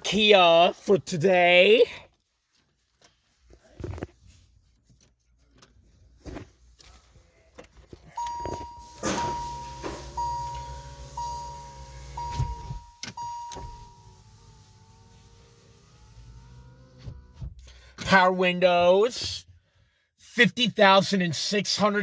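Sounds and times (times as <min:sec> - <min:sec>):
clicks and knocks of controls: 0:07.6 - 0:14.0
car warning chime dinging: 0:08.1 - 0:16.6
power window motor humming: 0:08.2 - 0:17.6.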